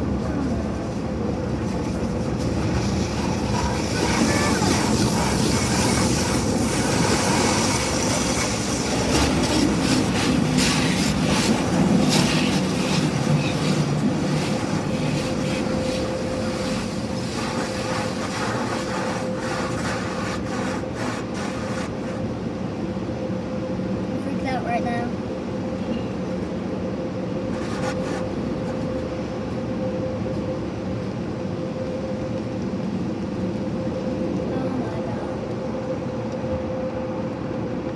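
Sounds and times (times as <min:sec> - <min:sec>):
car wash machine hum: 0:00.0 - 0:29.5
water spraying against car: 0:01.7 - 0:22.4, 0:27.5 - 0:29.1.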